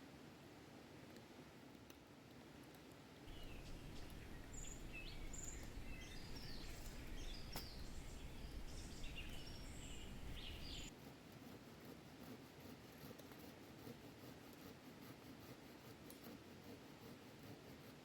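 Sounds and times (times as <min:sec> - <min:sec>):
low outdoor rush: 0:03.3 - 0:10.9
small birds chirping: 0:03.3 - 0:10.9.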